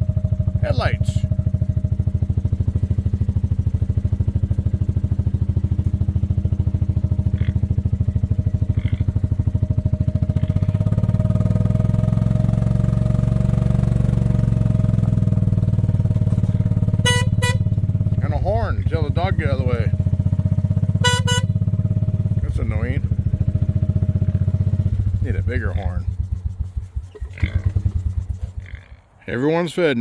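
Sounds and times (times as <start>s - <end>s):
utility vehicle engine running: 0.0s - 29.0s
short horn beep: 17.0s - 17.8s, 21.0s - 21.6s.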